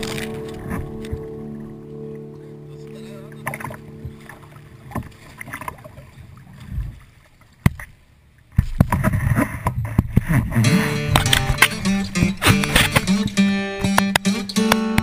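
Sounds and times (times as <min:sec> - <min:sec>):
strummed guitar music: 0:00.0 - 0:05.9, 0:10.6 - 0:15.0
water splashing around kayak: 0:00.0 - 0:13.3.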